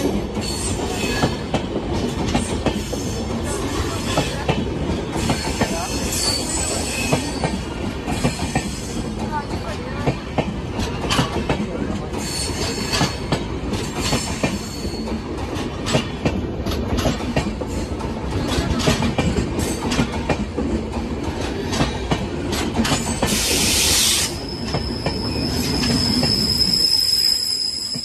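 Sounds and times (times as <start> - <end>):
train coaches rumbling past: 0.0 - 28.0
loud hiss: 23.2 - 24.5
high-pitched wheel squeal: 23.7 - 28.0.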